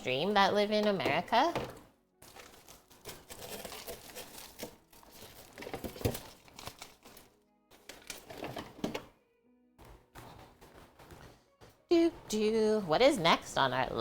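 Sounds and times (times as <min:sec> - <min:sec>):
faint background music: 0:00.0 - 0:14.0
packaging crinkling: 0:02.2 - 0:08.7.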